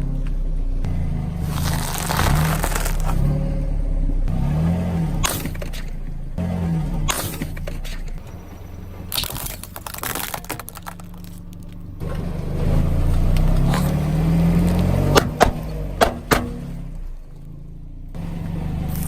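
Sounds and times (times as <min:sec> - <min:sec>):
car engine running: 0:00.0 - 0:19.0
sharp cracks: 0:01.4 - 0:03.4, 0:05.0 - 0:06.2, 0:07.1 - 0:12.1, 0:13.4 - 0:17.4.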